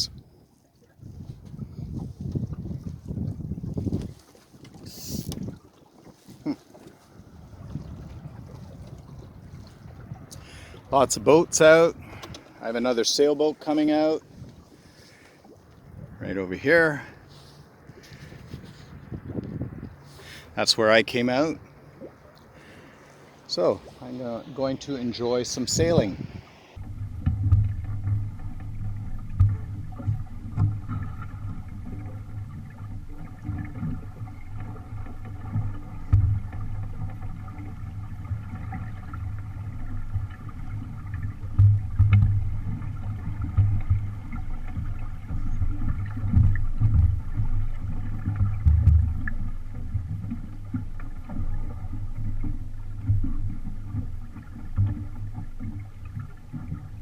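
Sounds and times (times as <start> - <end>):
water washing along hull: 0.0 - 57.0
wind buffeting microphone: 1.0 - 6.5, 7.1 - 12.5, 14.2 - 17.2, 17.8 - 22.8, 23.4 - 26.8.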